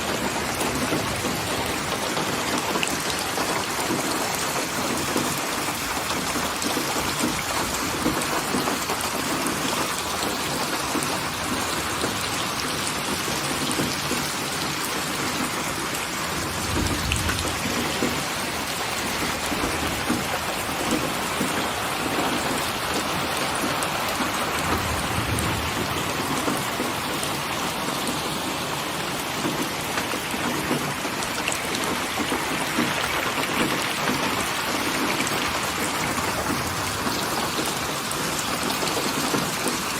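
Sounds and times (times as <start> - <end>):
heavy rain falling: 0.0 - 39.9
low rumble of thunder: 16.3 - 21.0, 24.5 - 27.3.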